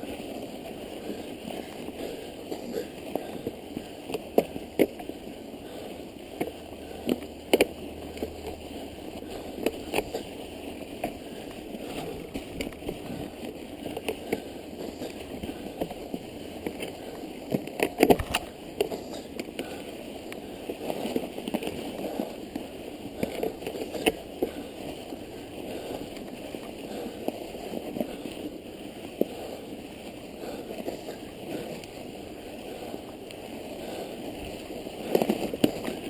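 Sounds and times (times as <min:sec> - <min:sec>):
bike tyres crunching snow: 0:00.0 - 0:36.0
bike clicks and knocks: 0:06.4 - 0:08.3, 0:15.8 - 0:19.7.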